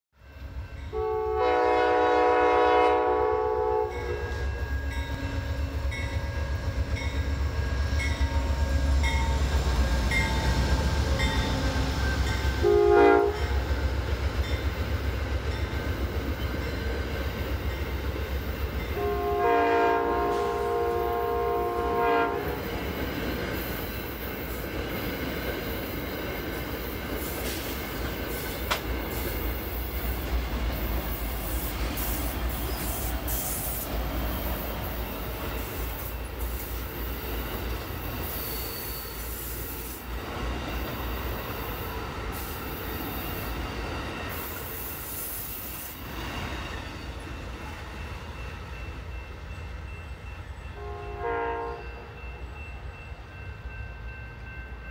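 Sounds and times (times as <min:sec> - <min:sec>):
train diesel and rail rumble: 0:00.2 - 0:54.9
train horn: 0:00.4 - 0:06.8, 0:07.6 - 0:13.8, 0:18.9 - 0:22.7, 0:50.7 - 0:52.4.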